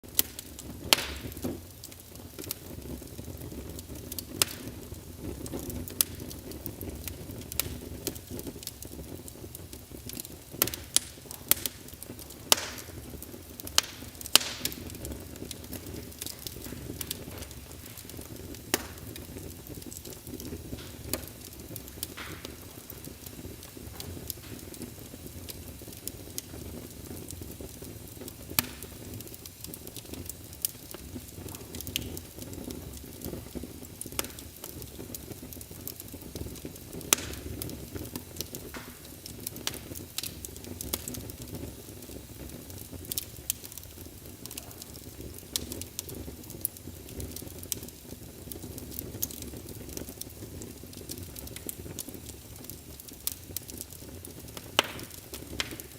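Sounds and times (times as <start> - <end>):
wood fire crackling and popping: 0.0 - 55.9.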